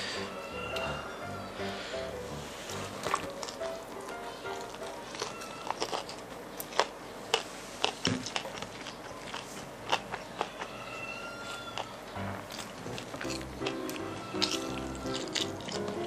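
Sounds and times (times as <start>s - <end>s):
person chewing food: 0.0s - 16.0s
crunching clicks: 3.0s - 10.7s, 11.5s - 16.0s.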